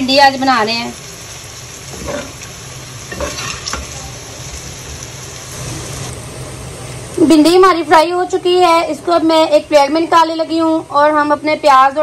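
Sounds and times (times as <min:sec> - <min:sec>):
okra sizzling in hot oil: 0:00.0 - 0:12.0
metal spoon scraping a pan: 0:03.1 - 0:03.9.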